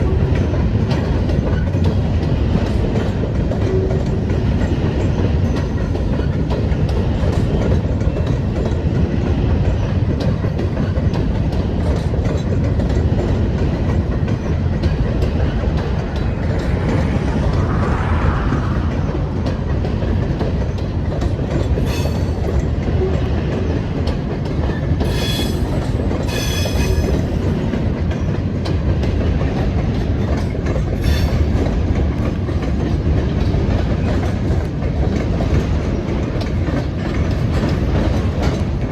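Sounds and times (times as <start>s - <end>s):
train wheels clacking over rail joints: 0.0s - 38.9s
train wheels squealing: 21.6s - 23.3s, 24.7s - 27.5s, 30.2s - 31.7s.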